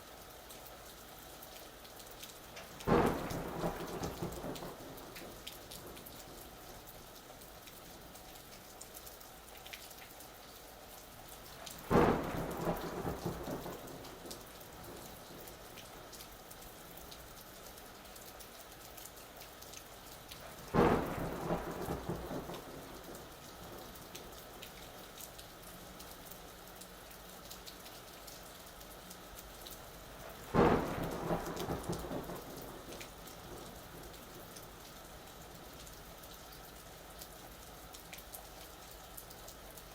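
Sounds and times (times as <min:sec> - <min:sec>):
steady rain: 0:00.0 - 0:39.9
thunder cracks and rumble: 0:02.8 - 0:06.4, 0:11.8 - 0:15.6, 0:20.7 - 0:24.2, 0:30.3 - 0:34.6.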